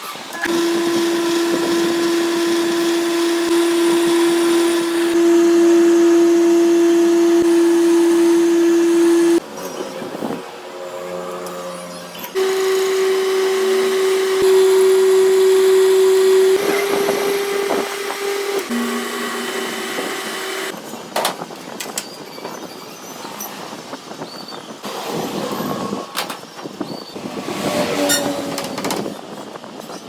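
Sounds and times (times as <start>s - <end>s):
metal lathe humming: 0.4s - 9.4s, 12.4s - 20.8s.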